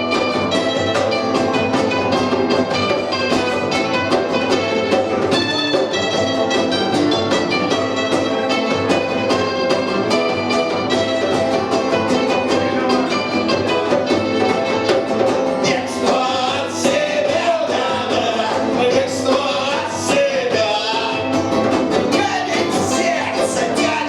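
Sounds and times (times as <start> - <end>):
punk rock band playing: 0.0 - 24.0
person singing: 15.6 - 24.0.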